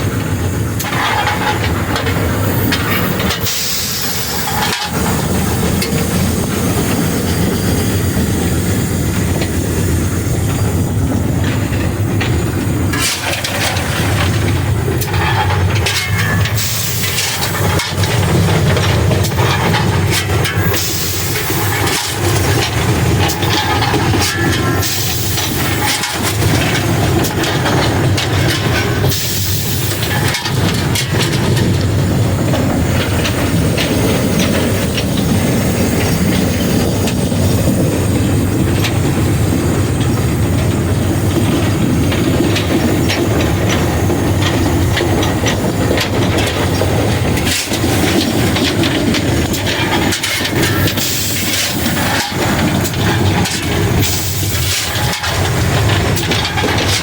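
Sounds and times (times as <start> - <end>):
loud steam hissing: 0.0 - 57.0
steam locomotive rumble and clatter: 0.0 - 57.0.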